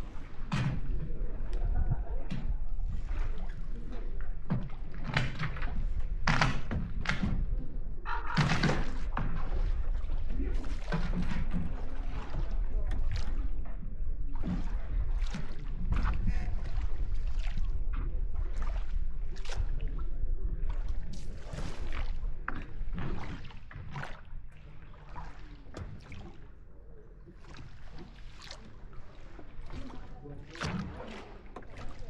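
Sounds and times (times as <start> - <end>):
boat low rumble: 0.0 - 32.0
water splashes and knocks: 0.0 - 32.0.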